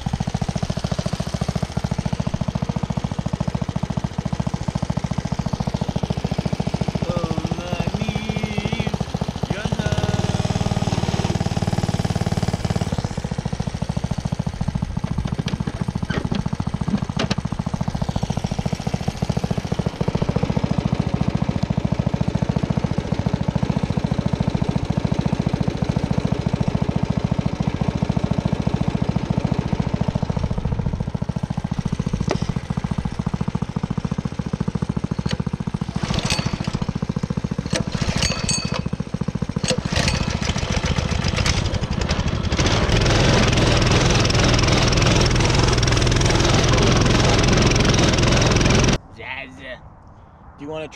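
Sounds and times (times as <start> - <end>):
single-cylinder engine running: 0.0 - 49.0
sharp rattles: 12.0 - 20.1, 30.1 - 48.4.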